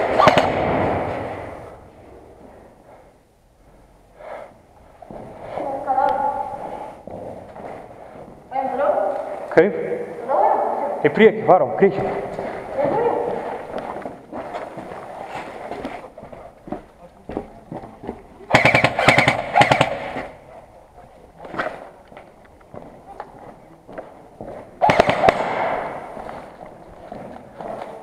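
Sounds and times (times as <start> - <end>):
airsoft guns firing bursts: 0.0 - 1.4, 18.5 - 20.4, 24.8 - 26.1.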